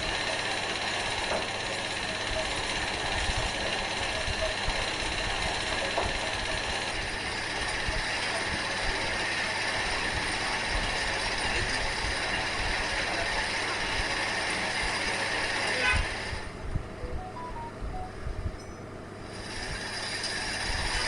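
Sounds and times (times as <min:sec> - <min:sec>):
metal lathe whirring: 0:00.0 - 0:11.4.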